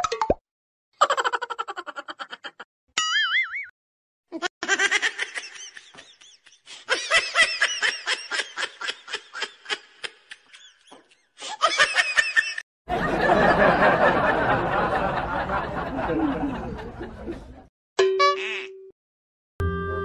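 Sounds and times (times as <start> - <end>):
high-pitched giggling: 1.0 - 2.7, 4.3 - 12.6.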